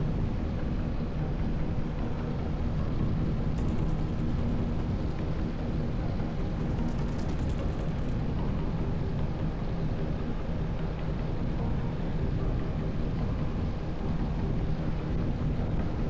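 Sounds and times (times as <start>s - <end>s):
motorcycle engine running: 3.6s - 8.2s.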